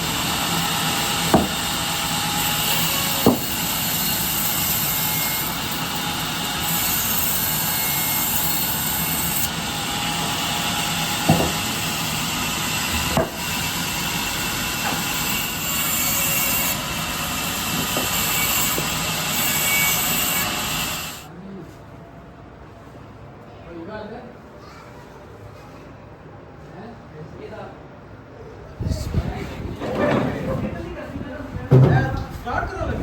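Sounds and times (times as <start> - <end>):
power saw cutting wood: 0.0 - 21.3
sharp knocks: 1.3 - 1.7, 3.2 - 3.5, 11.2 - 11.6, 13.1 - 13.4.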